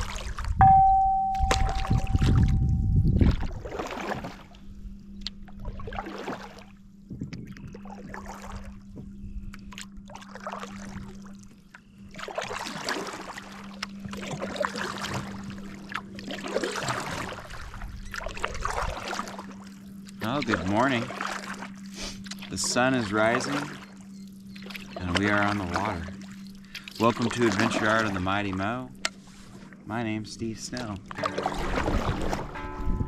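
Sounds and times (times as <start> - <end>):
low hum: 0.0 - 33.0
paddle splashing in water: 1.4 - 2.6, 3.2 - 4.6, 5.6 - 6.7, 7.8 - 8.8, 9.7 - 11.4, 12.1 - 23.9, 24.5 - 29.8, 30.7 - 33.0.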